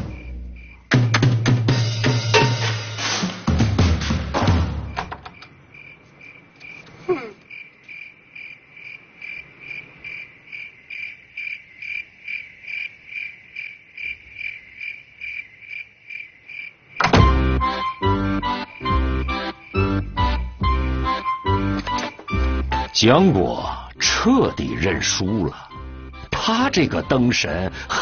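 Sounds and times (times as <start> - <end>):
crickets chirping: 0.0 - 1.0, 4.7 - 17.1, 17.7 - 28.0
drum music: 0.9 - 5.0.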